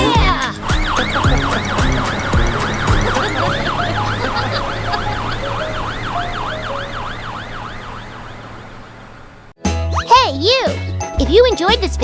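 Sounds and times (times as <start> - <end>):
low engine hum: 0.0 - 9.6
cartoon fire truck siren wailing: 0.3 - 9.4.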